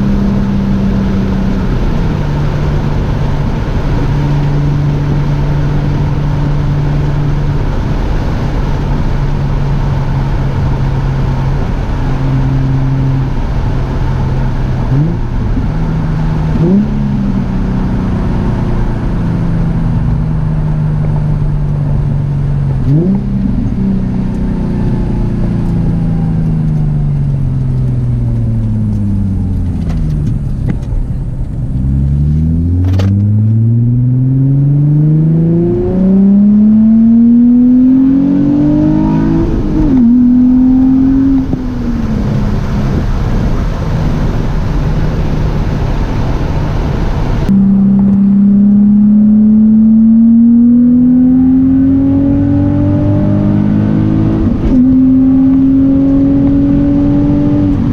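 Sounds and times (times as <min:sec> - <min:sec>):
car exhaust note while driving: 0:00.0 - 0:57.9.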